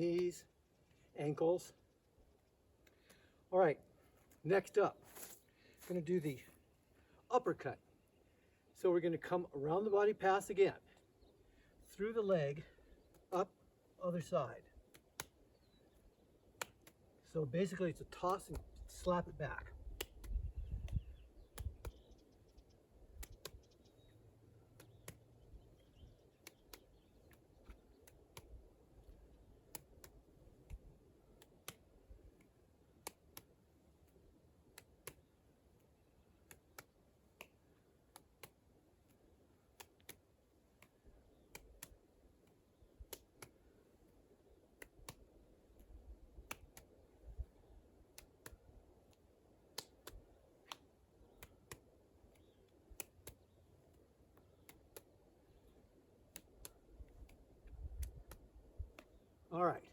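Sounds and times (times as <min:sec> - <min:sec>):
hands slapping rubber ball: 0:19.8 - 0:22.0, 0:24.7 - 0:25.3.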